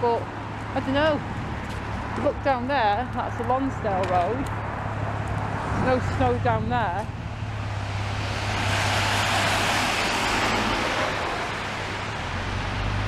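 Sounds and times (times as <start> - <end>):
car tyres hissing on wet road: 7.9 - 12.1.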